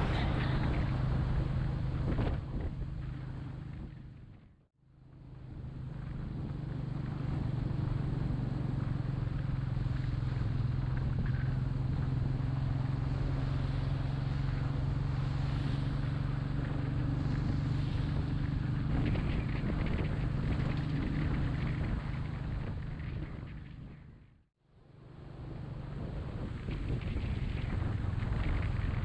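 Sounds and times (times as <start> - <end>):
wind noise: 0.0 - 4.5, 5.4 - 24.3, 25.3 - 29.0
motorcycle engine running: 5.1 - 24.2.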